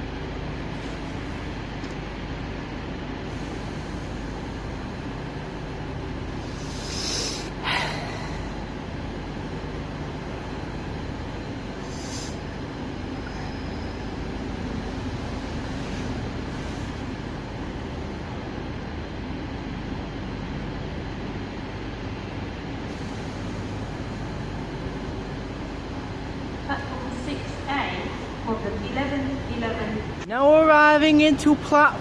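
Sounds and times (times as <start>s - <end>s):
diesel train engines running: 0.0s - 32.0s
short air hisses: 6.4s - 8.2s, 11.8s - 12.5s.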